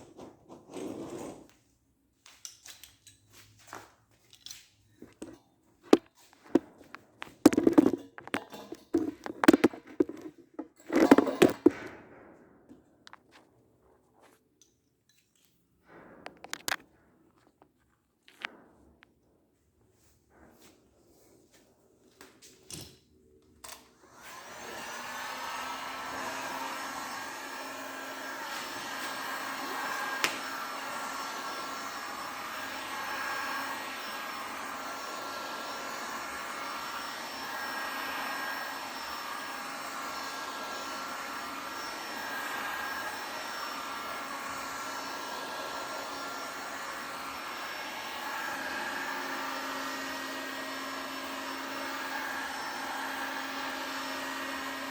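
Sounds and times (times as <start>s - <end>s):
electric blower running: 7.2s - 11.9s, 24.1s - 54.9s.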